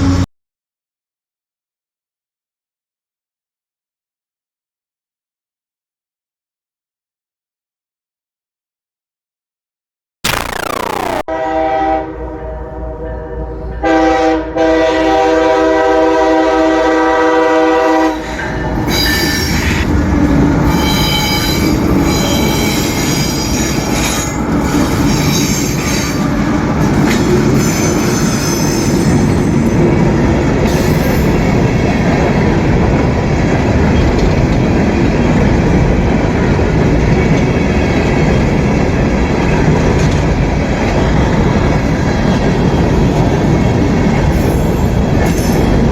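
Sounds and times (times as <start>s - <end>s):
train air horn blasts: 11.3s - 18.2s
clickety-clack of train wheels: 18.1s - 45.9s.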